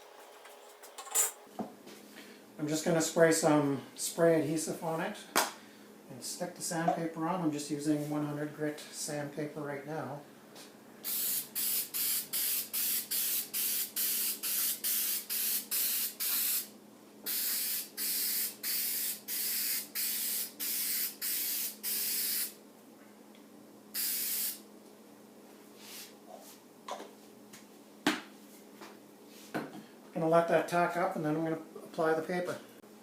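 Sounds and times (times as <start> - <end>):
aerosol can spraying: 11.1 - 16.7, 17.3 - 22.5, 24.0 - 24.6.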